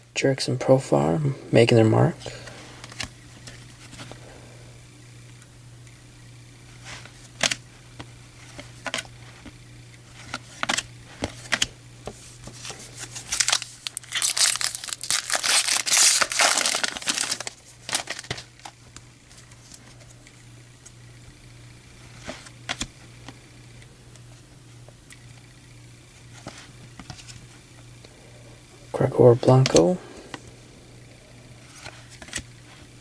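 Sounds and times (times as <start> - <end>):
faint steady hum: 0.0 - 33.0
cards clicking while handled: 7.3 - 19.8, 22.2 - 23.4, 29.6 - 30.4, 31.7 - 32.5
wrapper crinkling and tearing: 12.6 - 18.8.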